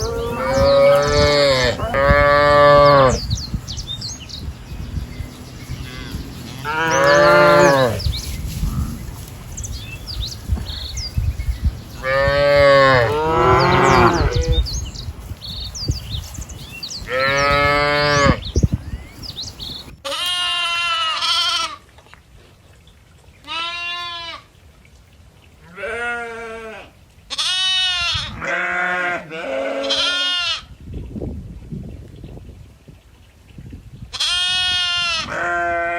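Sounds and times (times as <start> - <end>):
livestock drawn-out calls: 0.0 - 3.2, 5.8 - 8.0
quavering goat bleats: 20.0 - 21.8, 23.5 - 24.4, 25.7 - 30.7.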